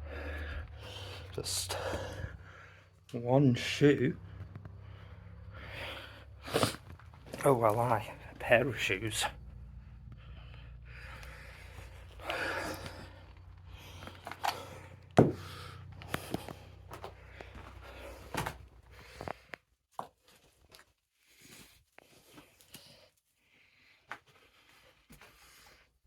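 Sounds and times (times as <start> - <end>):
low steady hum: 0.0 - 19.2
footsteps and scuffs: 3.8 - 9.4, 15.2 - 19.4.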